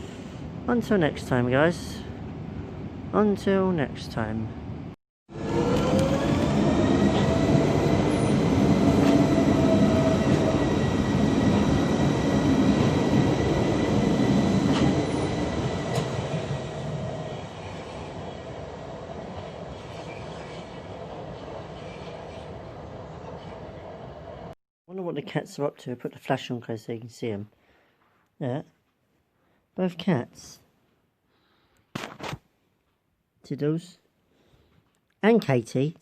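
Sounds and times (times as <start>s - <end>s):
electric train motor whine: 5.3s - 23.5s
wheels rumbling on rail: 5.3s - 24.6s.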